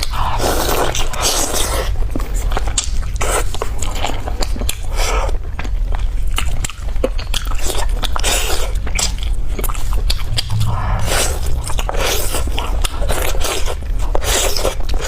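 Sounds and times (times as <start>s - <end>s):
chewing meat off bone: 0.0s - 10.4s
teeth crunching on bone: 2.4s - 9.8s.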